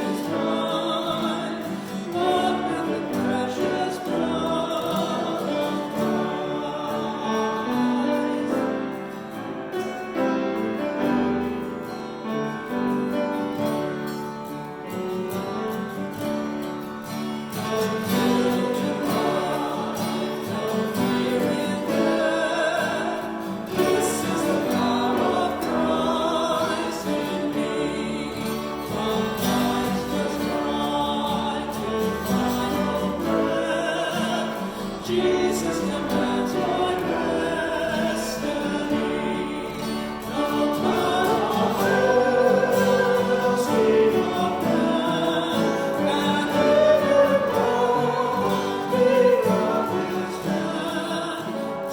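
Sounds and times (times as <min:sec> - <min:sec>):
choir singing a hymn: 0:00.0 - 0:51.9
instrumental accompaniment: 0:00.0 - 0:51.9.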